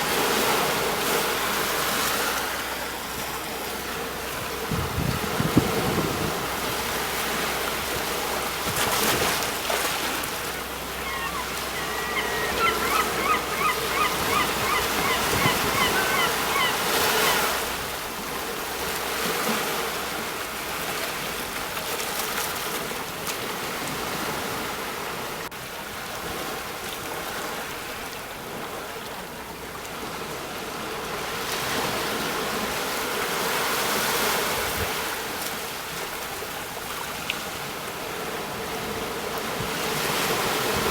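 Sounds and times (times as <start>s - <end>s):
sea waves breaking on shore: 0.0s - 40.9s
bird calling rapid notes: 11.0s - 17.4s.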